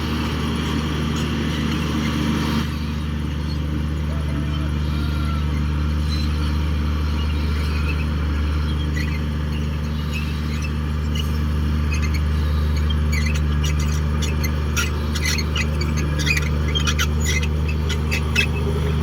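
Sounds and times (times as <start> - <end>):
bulldozer diesel engine running: 0.0 - 19.0
short high squeaks and clicks: 8.8 - 19.0.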